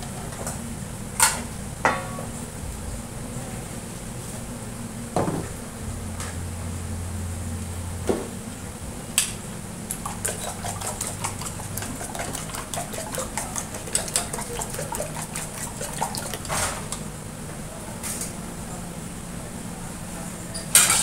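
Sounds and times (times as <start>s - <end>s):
utensils and dishes clattering: 9.9s - 17.0s, 20.6s - 21.0s.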